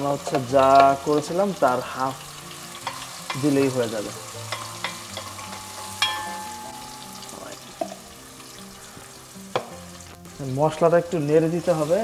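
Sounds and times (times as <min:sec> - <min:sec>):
spice paste sizzling in oil: 0:00.0 - 0:12.0
spoon clinking against pot: 0:02.8 - 0:03.6, 0:04.4 - 0:08.0.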